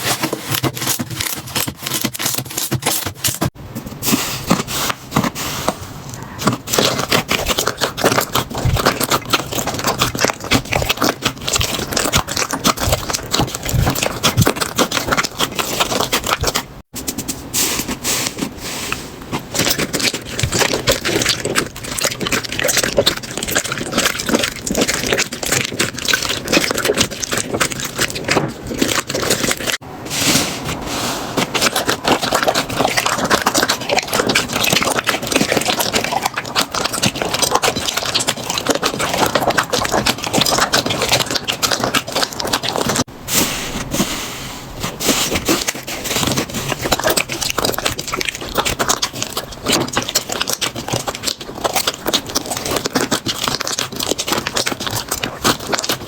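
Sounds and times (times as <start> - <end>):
slime crackling and popping: 6.4 - 16.9, 19.3 - 29.8, 31.4 - 43.1, 44.9 - 56.0.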